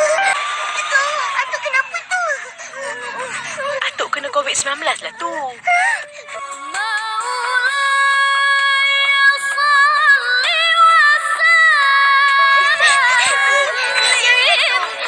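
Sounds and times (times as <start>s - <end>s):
high-pitched singing voice: 6.3s - 15.0s.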